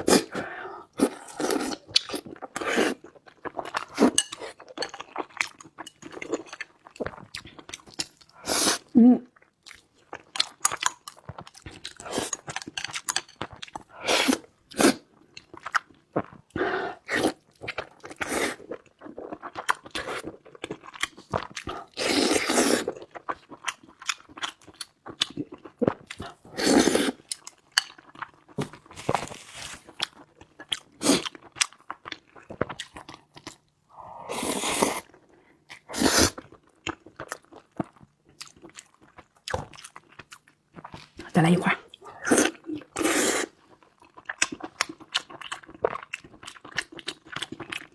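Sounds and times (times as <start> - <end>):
person chewing food: 0.0 - 47.9.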